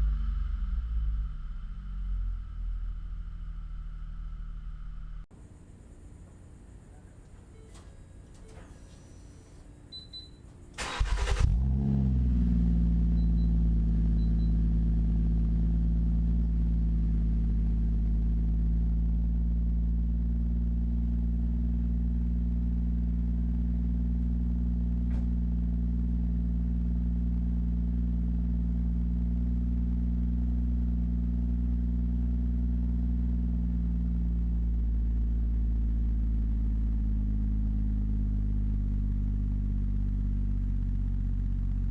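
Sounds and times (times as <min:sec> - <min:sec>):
car engine idling: 0:00.0 - 0:09.6, 0:10.7 - 0:41.9
car engine cranking and starting: 0:10.7 - 0:15.1.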